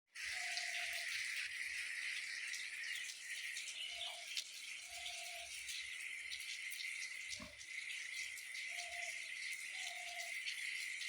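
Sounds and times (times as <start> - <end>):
water drips: 0.2 - 11.0.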